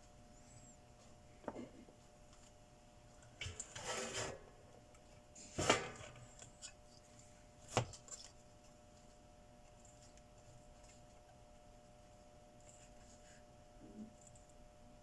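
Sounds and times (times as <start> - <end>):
scraping rub on workbench: 3.6 - 4.4.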